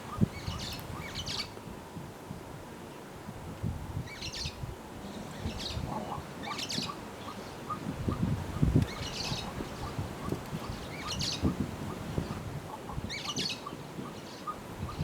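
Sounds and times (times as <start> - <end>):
small birds chirping: 4.1 - 15.0.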